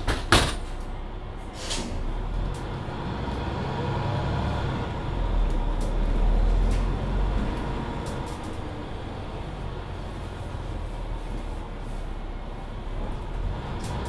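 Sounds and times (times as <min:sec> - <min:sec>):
bus engine rumble: 0:00.0 - 0:14.0.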